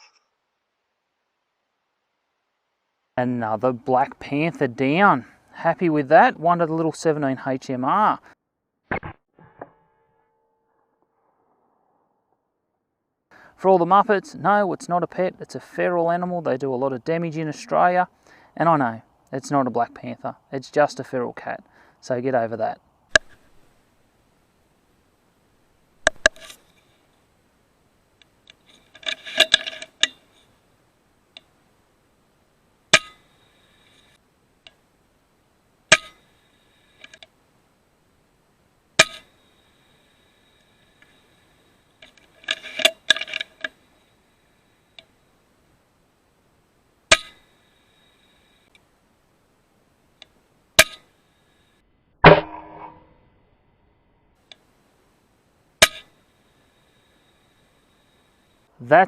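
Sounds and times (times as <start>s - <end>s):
faint clicks: 28.2s - 30.5s, 31.3s - 31.6s, 47.2s - 48.9s, 50.2s - 51.7s, 54.4s - 54.7s
sharp metallic clicks with ringing: 32.9s - 33.3s, 35.9s - 36.2s, 47.1s - 47.5s, 50.2s - 51.1s, 55.8s - 56.2s.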